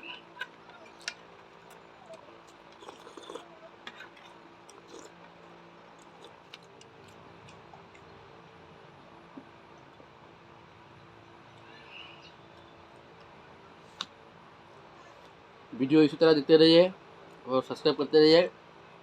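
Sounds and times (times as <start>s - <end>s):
chewing mouth noises: 0.0s - 8.3s
steady low hum: 0.0s - 19.0s.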